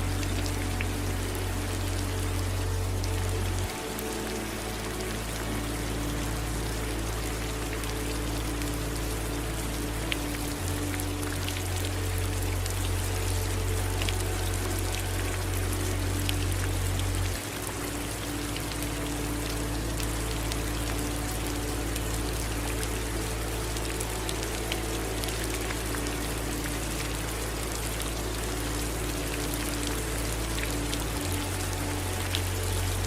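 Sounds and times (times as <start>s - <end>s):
low steady rumble: 0.0s - 33.0s
rain pattering: 0.0s - 33.0s
running water: 0.0s - 33.0s.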